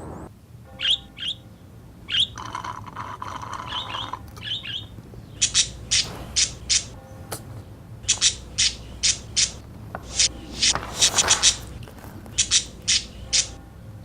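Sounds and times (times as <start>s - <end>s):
budgie chirping: 0.7s - 14.0s
budgie squawking: 3.2s - 13.7s.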